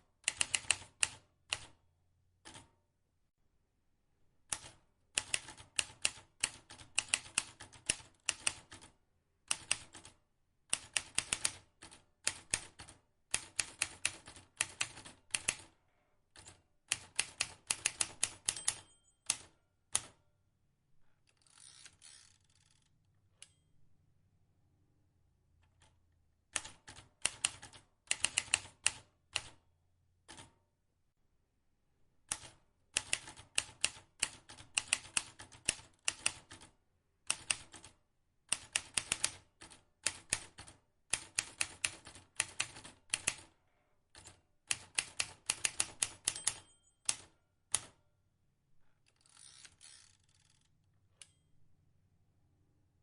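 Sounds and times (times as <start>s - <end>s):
typewriter key strikes: 17.4s - 19.5s, 45.2s - 47.9s.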